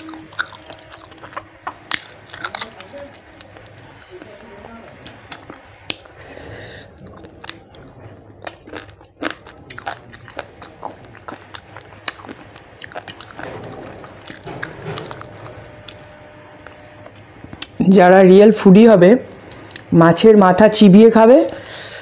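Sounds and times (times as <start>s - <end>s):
person chewing food: 0.0s - 4.3s, 5.0s - 13.4s.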